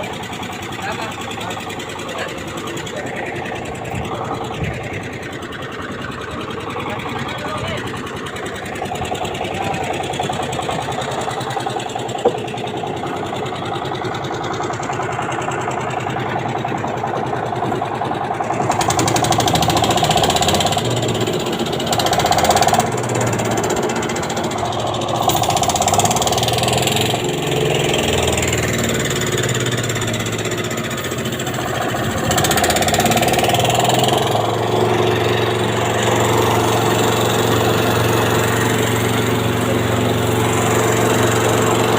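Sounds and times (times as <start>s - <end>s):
engine running: 0.0s - 41.9s.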